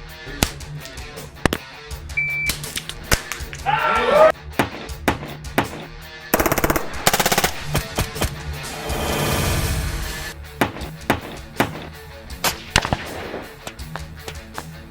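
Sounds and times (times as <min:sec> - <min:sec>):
sharp cracks: 0:02.5 - 0:03.6, 0:04.6 - 0:08.6, 0:10.6 - 0:14.4.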